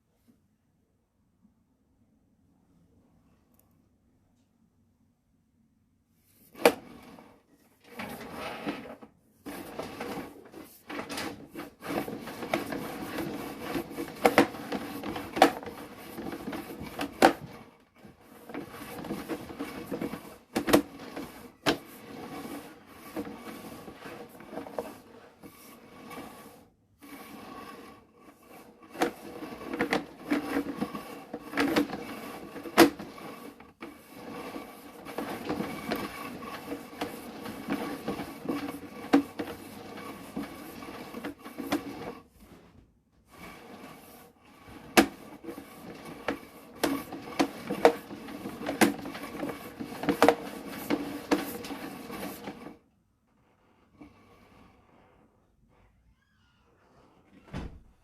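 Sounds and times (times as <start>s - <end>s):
mechanical rattling and scraping: 6.6s - 42.7s, 43.3s - 52.8s.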